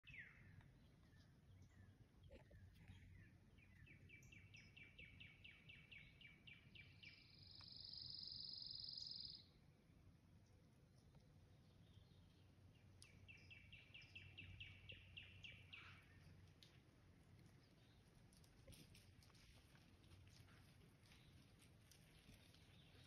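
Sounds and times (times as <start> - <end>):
songbird singing: 0.0 - 19.3, 20.4 - 23.0.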